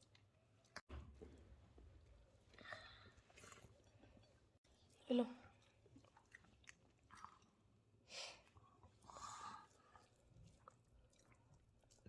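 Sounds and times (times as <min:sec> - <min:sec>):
quiet chewing: 0:02.1 - 0:07.8, 0:08.4 - 0:12.0
soft breathy sounds: 0:02.4 - 0:03.8, 0:08.0 - 0:10.3.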